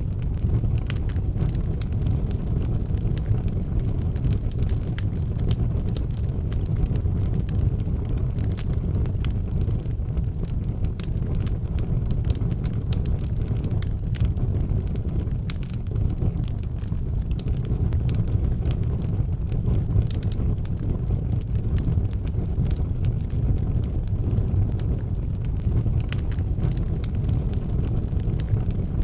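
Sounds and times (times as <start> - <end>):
fire low rumble: 0.0 - 29.0
wood fire crackling and popping: 0.0 - 29.0.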